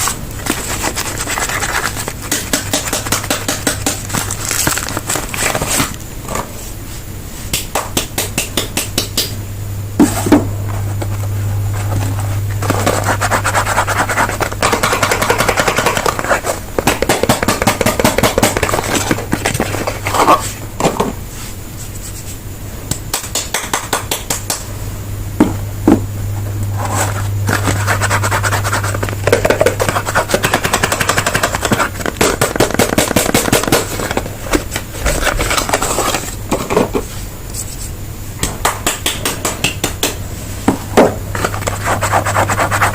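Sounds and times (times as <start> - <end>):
steady low hum: 0.0 - 42.9
soap wrappers crackling: 0.4 - 6.0.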